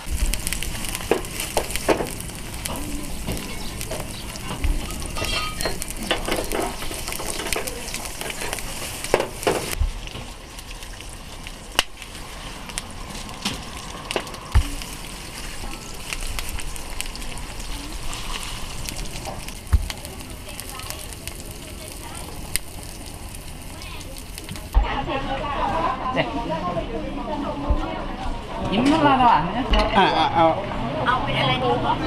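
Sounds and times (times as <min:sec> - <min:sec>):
food sizzling in a hot pan: 0:00.0 - 0:24.8
utensils clicking against pan: 0:00.6 - 0:09.8.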